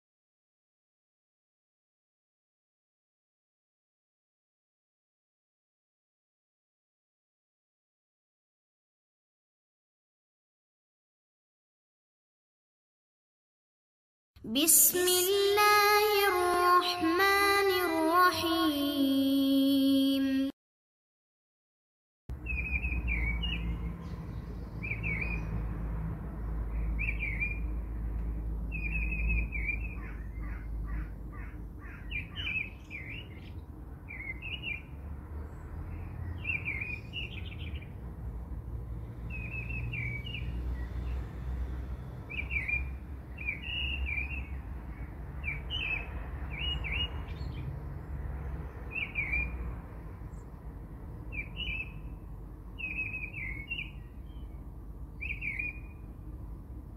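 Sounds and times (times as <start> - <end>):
birds chirping: 22.3 - 25.7, 26.4 - 27.8, 28.7 - 38.0, 42.3 - 47.7, 48.6 - 49.6, 51.2 - 54.6, 55.2 - 56.1
bird trill: 22.4 - 24.1, 24.8 - 25.5, 27.0 - 27.7, 28.7 - 34.9, 36.2 - 37.9, 48.9 - 49.6, 51.3 - 52.0, 52.8 - 54.5, 55.2 - 56.0.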